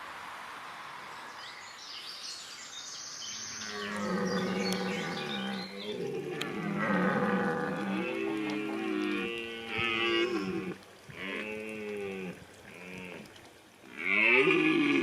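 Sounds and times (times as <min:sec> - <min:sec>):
cattle mooing: 0:03.6 - 0:13.3, 0:13.9 - 0:15.0.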